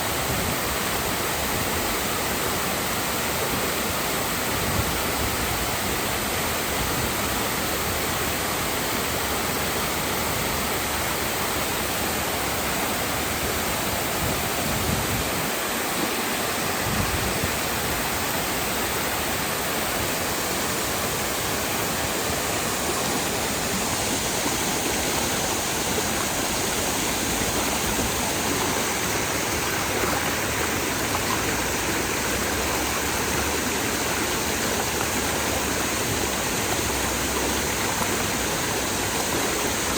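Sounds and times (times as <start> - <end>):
waterfall pouring: 12.9 - 39.9.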